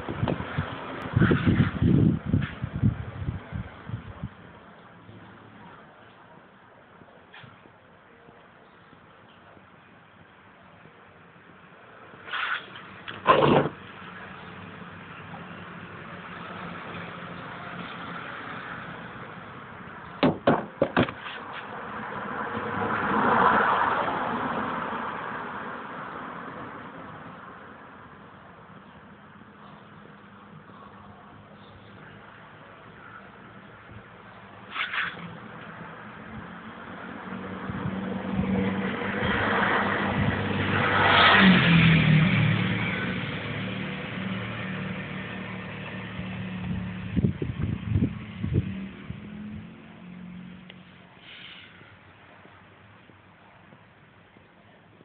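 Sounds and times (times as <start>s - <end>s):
background noise: 0.0s - 55.0s
vehicle passing by: 21.4s - 27.6s, 34.8s - 51.7s.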